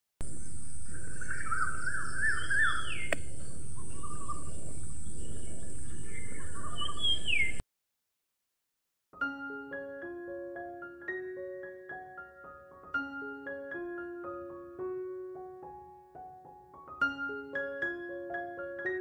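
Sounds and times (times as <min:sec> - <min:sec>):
outdoor background hiss: 0:00.2 - 0:06.4
birds singing and calling: 0:00.3 - 0:07.6
sharp click: 0:03.1 - 0:03.3.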